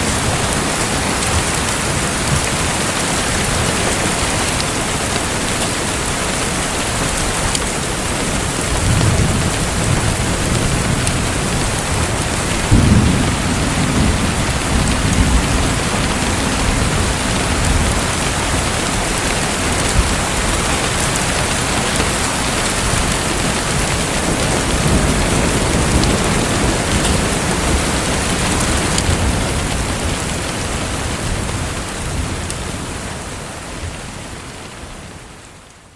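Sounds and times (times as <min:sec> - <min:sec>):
steady rain: 0:00.0 - 0:35.9
low thunder rolls: 0:08.0 - 0:32.5.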